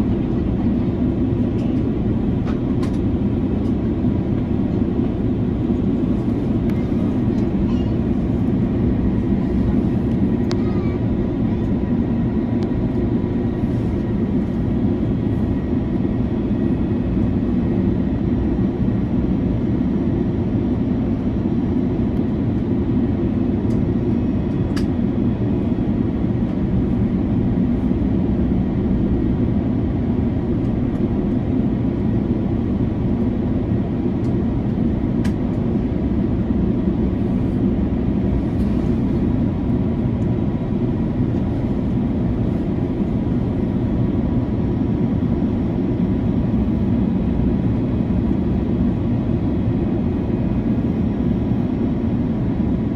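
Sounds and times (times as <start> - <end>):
airplane cabin rumble: 0.0 - 52.9.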